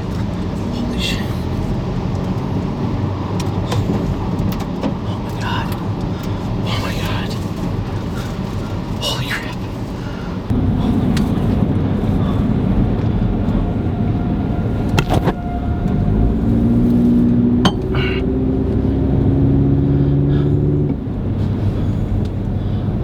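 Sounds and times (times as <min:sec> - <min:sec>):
low road rumble: 0:00.0 - 0:23.0
vehicle engine running: 0:00.0 - 0:23.0.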